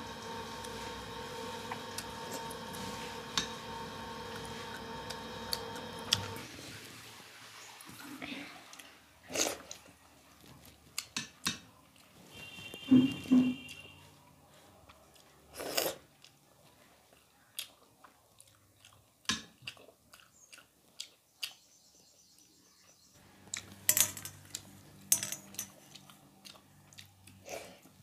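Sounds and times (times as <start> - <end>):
person chewing and biting food: 17.2 - 21.6, 25.8 - 28.0.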